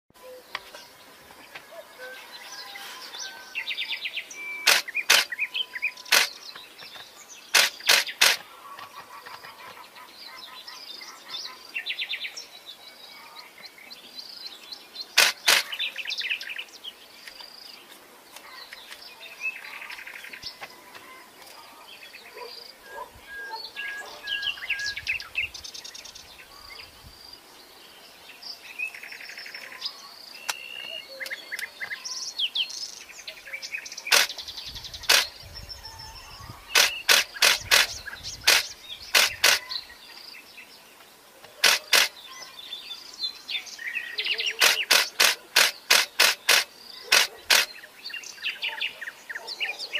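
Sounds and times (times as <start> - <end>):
birds chirping and trilling: 0.2 - 49.9
loud sharp clicks: 4.6 - 5.4, 6.1 - 6.4, 7.5 - 8.4, 15.2 - 15.8, 34.1 - 34.4, 35.0 - 35.4, 36.7 - 39.8, 41.5 - 42.2, 44.6 - 47.8.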